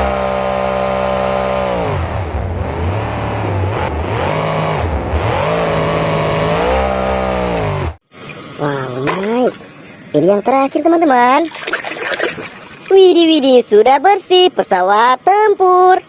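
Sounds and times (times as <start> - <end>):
engine revving: 0.0 - 8.0.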